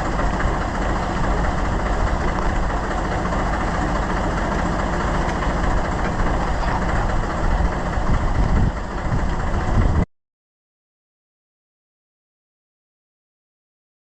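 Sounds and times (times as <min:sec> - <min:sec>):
tractor engine running: 0:00.0 - 0:10.1.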